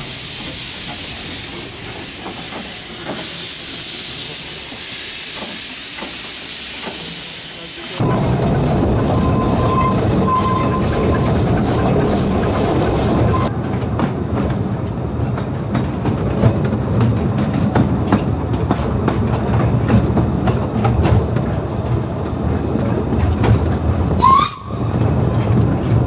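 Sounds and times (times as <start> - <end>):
train running: 0.0 - 26.0
sharp rising squeal: 8.0 - 12.0
wheels clicking over rail joints: 8.0 - 26.0.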